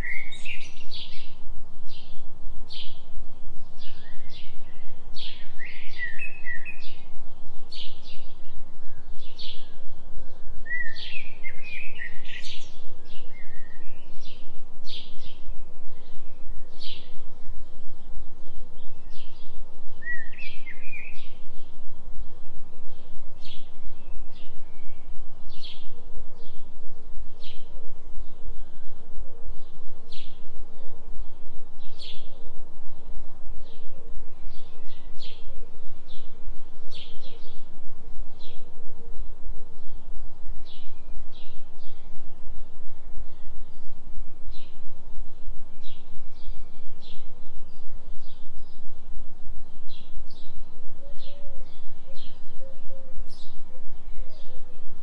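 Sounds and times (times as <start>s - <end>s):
forest birds chirping: 0.0s - 55.0s
low pulsing drone: 0.0s - 55.0s.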